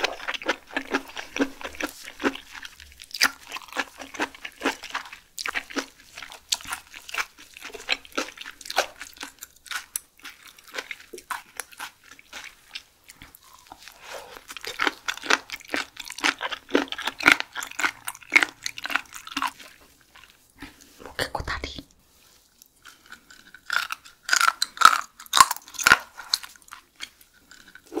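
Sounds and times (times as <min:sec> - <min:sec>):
wet crunchy chewing: 0:00.0 - 0:21.0, 0:22.3 - 0:28.0.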